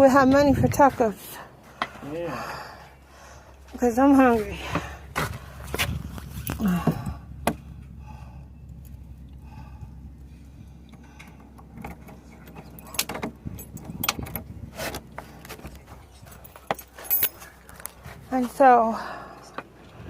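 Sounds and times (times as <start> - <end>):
steady low hum: 0.0 - 20.0
light rattles: 8.7 - 18.7.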